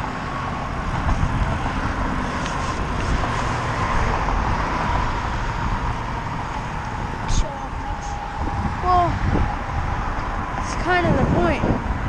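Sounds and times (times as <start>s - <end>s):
bicycle road noise: 0.0s - 12.0s
wind rumbling on microphone: 0.0s - 12.0s.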